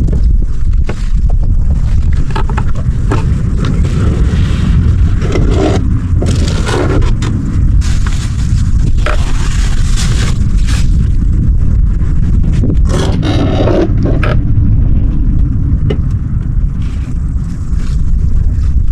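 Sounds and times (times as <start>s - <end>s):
scrapes and rustles: 0.0s - 11.4s
wind buffeting microphone: 0.0s - 18.9s.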